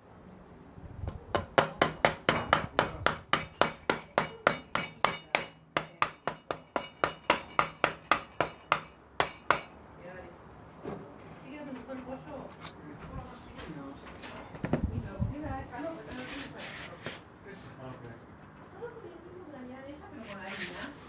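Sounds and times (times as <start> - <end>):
hammering on metal: 1.1 - 9.8.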